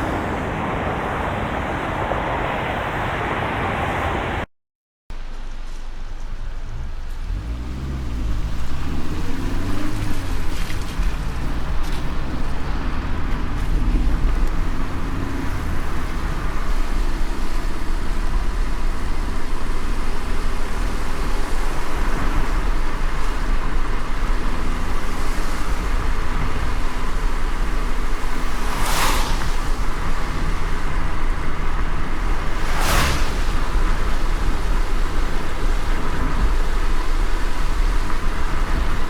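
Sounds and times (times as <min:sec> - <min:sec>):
car engine and road rumble: 0:00.0 - 0:04.4, 0:05.1 - 0:39.0
tyre and wind hiss: 0:05.2 - 0:39.0.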